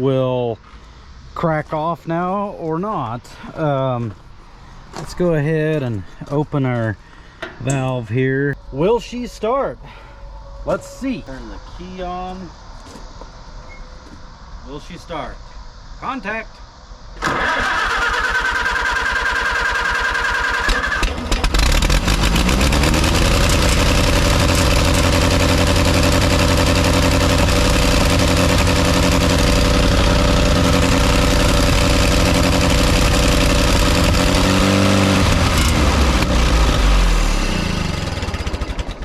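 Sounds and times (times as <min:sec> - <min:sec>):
tractor engine cranking: 0:07.4 - 0:08.1, 0:17.2 - 0:39.0
tractor engine running: 0:17.2 - 0:39.0.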